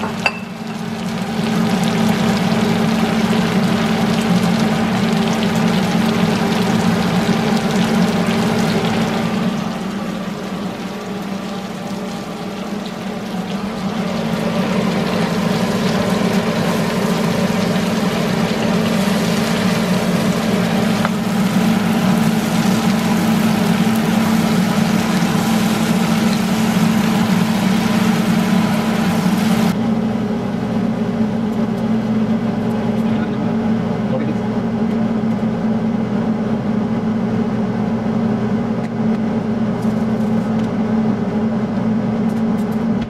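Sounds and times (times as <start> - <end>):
chicken and mushrooms sizzling in wok: 0.0 - 29.8
range hood fan humming: 0.0 - 43.0.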